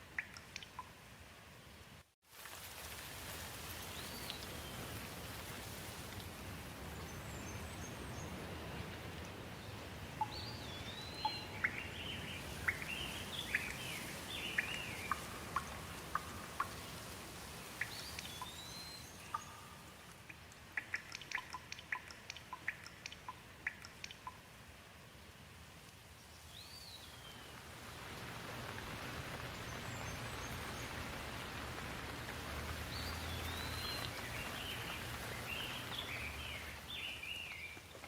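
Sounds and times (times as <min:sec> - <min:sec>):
water drops dripping: 0:00.0 - 0:01.0, 0:10.2 - 0:24.6, 0:29.7 - 0:38.0
steady rain falling: 0:00.0 - 0:38.0
birds chirping: 0:09.6 - 0:17.0, 0:17.6 - 0:20.1, 0:29.0 - 0:38.0.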